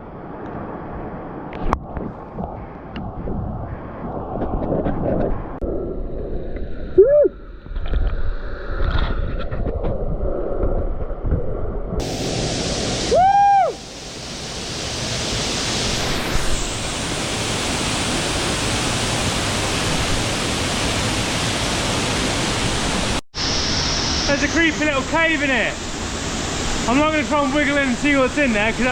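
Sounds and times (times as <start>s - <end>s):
rising and falling whoop: 7.0s - 7.4s, 13.0s - 14.0s
waterfall roaring: 12.0s - 28.9s.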